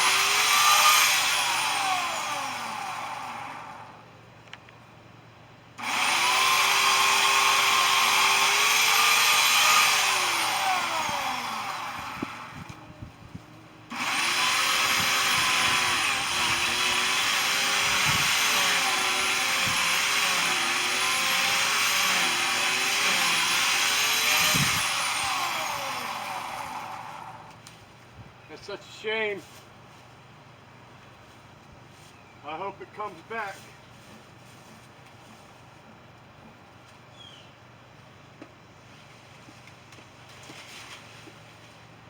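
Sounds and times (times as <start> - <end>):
electric power tool motor: 0.0 - 3.9, 5.8 - 12.9, 13.9 - 27.6.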